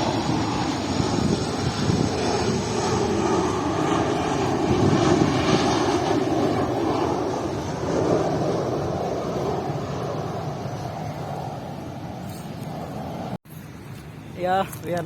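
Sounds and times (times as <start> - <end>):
jet airliner flying past: 0.0 - 14.8.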